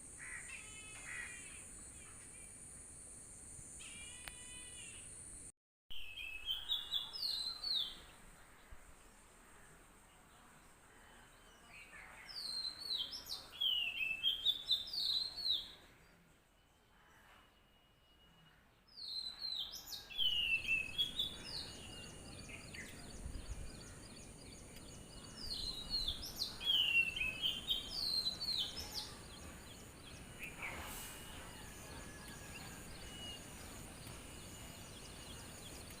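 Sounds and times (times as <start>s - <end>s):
small birds chirping: 19.0s - 36.0s.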